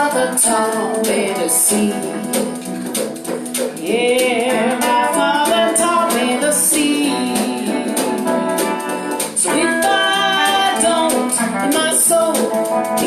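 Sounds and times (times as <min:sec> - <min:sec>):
live blues band playing: 0:00.0 - 0:13.0
person singing: 0:00.0 - 0:13.0.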